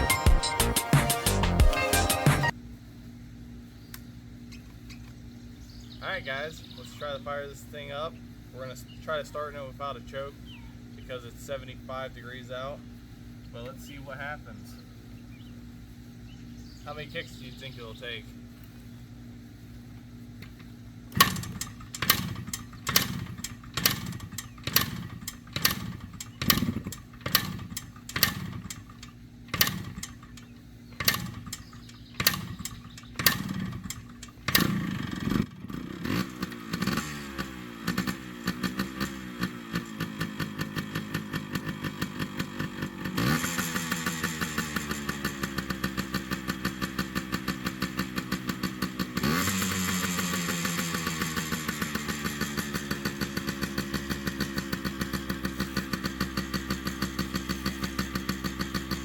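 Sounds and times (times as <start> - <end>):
two-stroke engine running: 4.2 - 59.0
motorcycle kick-starter kicks: 19.8 - 59.0.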